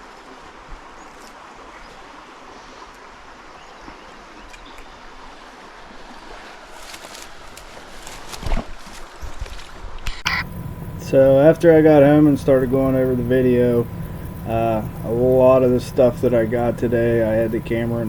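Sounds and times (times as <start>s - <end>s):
faint clicks: 10.1s - 18.0s
creek water running: 10.3s - 18.0s.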